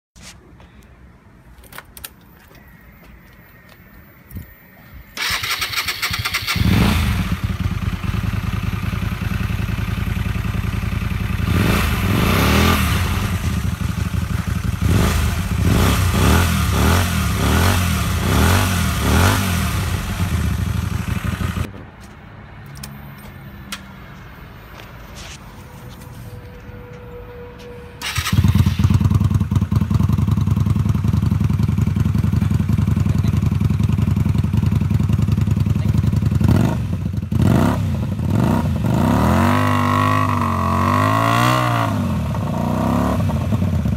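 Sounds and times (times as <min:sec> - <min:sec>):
motorcycle starter cranking: 0:05.2 - 0:07.6, 0:28.0 - 0:29.0
motorcycle engine idling and revving: 0:05.2 - 0:21.7, 0:28.0 - 0:43.9.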